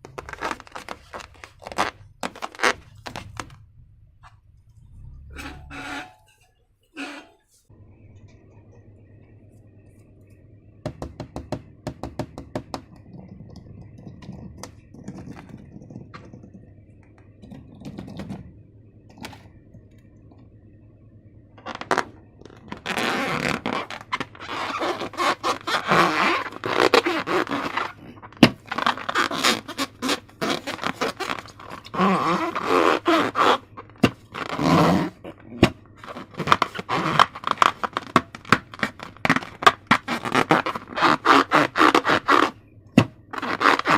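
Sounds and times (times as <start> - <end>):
slime scraping and crackling: 0.0 - 3.6, 21.6 - 42.6, 43.3 - 43.9
clicks and taps: 10.9 - 18.4.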